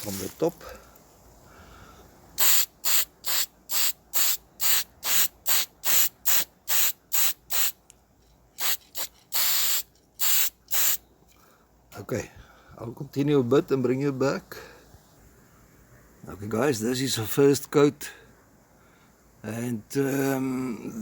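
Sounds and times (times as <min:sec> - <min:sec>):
spray paint hissing bursts: 0:02.4 - 0:07.8, 0:08.6 - 0:11.0.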